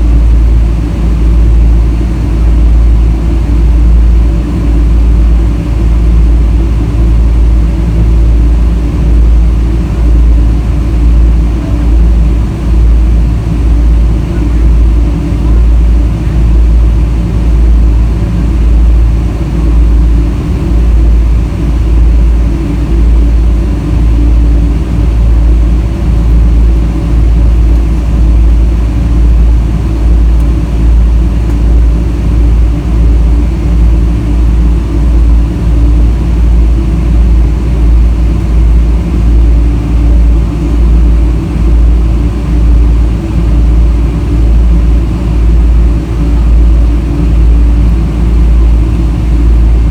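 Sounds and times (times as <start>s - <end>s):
deep pulsing rumble: 0.0s - 49.9s
jet engine drone in cabin: 0.0s - 49.9s.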